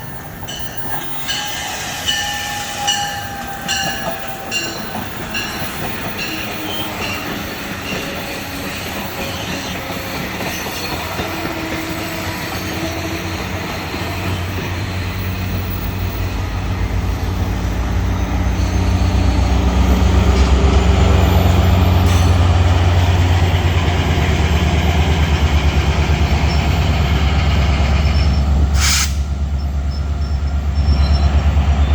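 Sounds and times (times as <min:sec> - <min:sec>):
train engine throbbing: 0:00.0 - 0:31.9
air hiss: 0:28.8 - 0:29.4.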